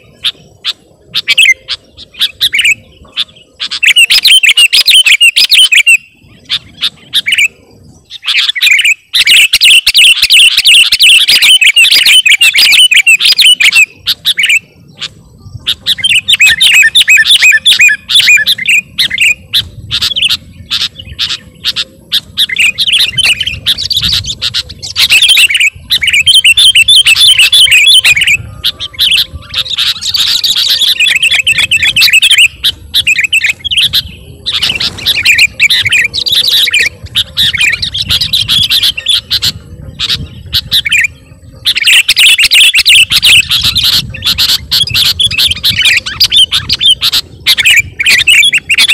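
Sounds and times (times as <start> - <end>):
bird singing in chattering phrases: 0.0 - 48.9.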